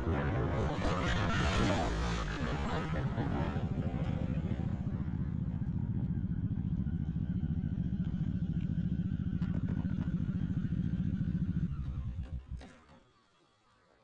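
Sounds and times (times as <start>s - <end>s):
motorcycle engine running: 2.2s - 12.9s.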